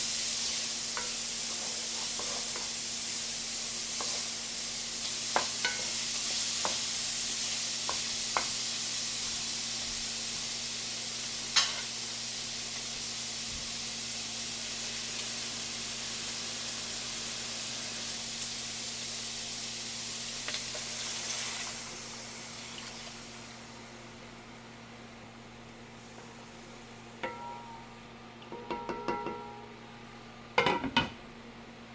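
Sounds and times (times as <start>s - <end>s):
food sizzling in a pan: 0.0s - 28.1s
low steady hum: 22.1s - 31.9s.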